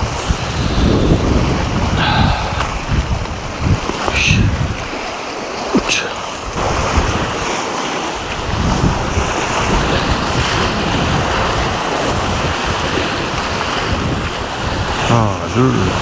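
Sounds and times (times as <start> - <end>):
wind buffeting microphone: 0.0 - 15.1
sea waves washing: 0.0 - 16.0.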